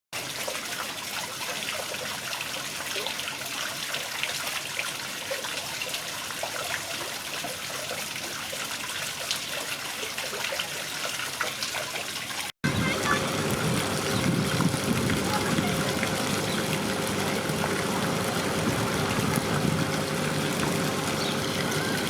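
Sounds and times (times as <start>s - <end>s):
water splashing and trickling: 0.2s - 22.0s.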